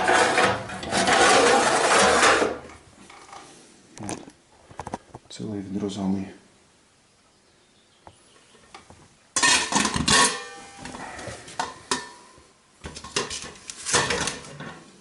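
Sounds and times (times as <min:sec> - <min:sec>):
sheet metal clanking and scraping: 0:00.0 - 0:03.4, 0:12.9 - 0:14.9.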